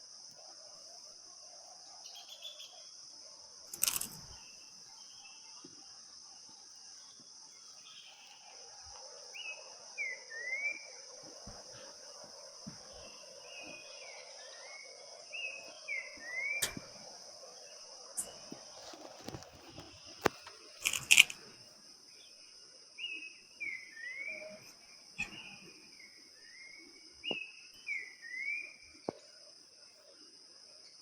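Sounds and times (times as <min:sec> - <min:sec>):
bird chirping: 0:02.0 - 0:03.0, 0:09.2 - 0:12.2, 0:12.9 - 0:18.5, 0:22.2 - 0:29.0
insects shrilling: 0:03.6 - 0:05.6, 0:06.3 - 0:21.7
sharp clicks: 0:03.7 - 0:04.3, 0:16.6 - 0:17.0, 0:19.2 - 0:21.4.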